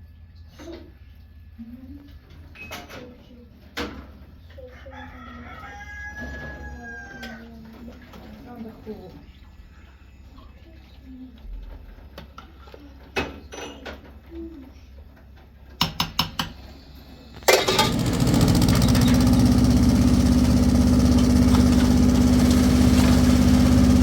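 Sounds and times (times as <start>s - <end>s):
engine starting and running: 17.3s - 24.0s.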